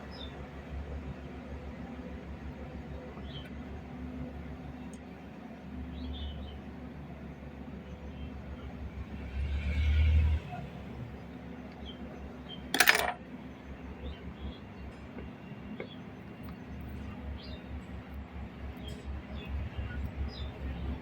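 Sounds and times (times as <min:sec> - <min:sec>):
metal tool clatter: 0:12.7 - 0:13.2.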